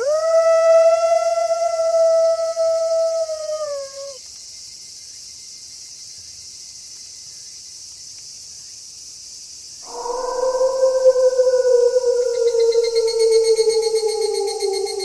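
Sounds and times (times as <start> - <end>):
wolf howling: 0.0 - 4.2, 9.8 - 15.0
high hiss of night background: 0.0 - 15.0.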